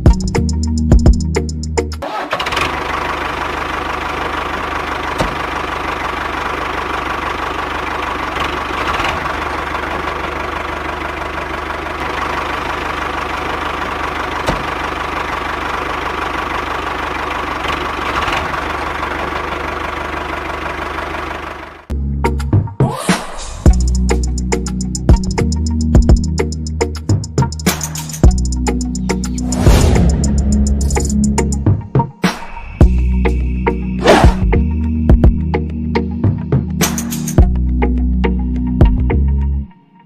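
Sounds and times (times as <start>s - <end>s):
music: 0.0s - 2.0s, 21.9s - 40.0s.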